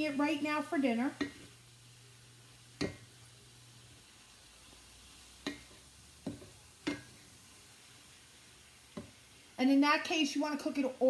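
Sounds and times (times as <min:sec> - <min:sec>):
meat sizzling in a pan: 0:00.0 - 0:11.0
utensil clicking against pan: 0:01.2 - 0:01.5, 0:02.8 - 0:03.1, 0:05.4 - 0:07.1.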